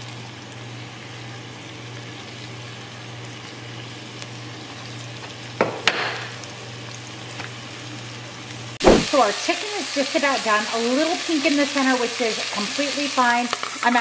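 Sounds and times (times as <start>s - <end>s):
food sizzling in oil: 0.0s - 14.0s
sharp knocks: 8.8s - 9.1s.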